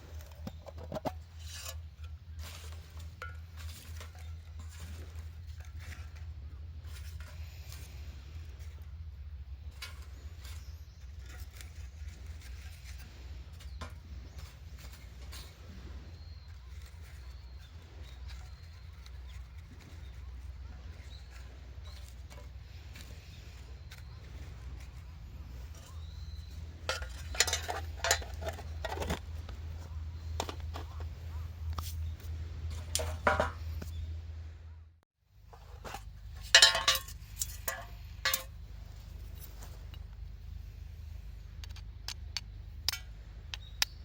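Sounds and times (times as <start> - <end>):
steady low rumble: 0.0 - 44.0
hard objects clicking and clinking: 26.8 - 29.3, 36.4 - 38.5.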